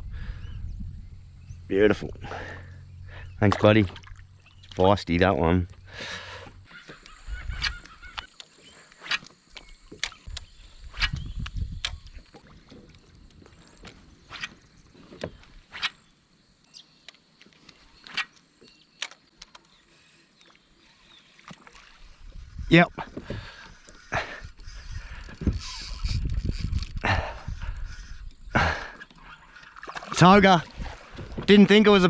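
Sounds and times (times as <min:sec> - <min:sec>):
fishing gear clicks and knocks: 0:17.1 - 0:19.8, 0:22.9 - 0:29.9
low rumble of handling: 0:22.9 - 0:28.4.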